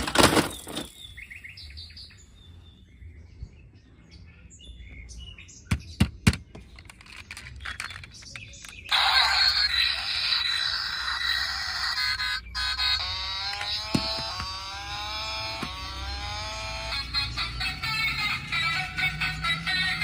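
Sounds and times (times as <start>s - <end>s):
birds chirping: 0.0s - 20.0s
sharp clicks: 13.0s - 14.6s.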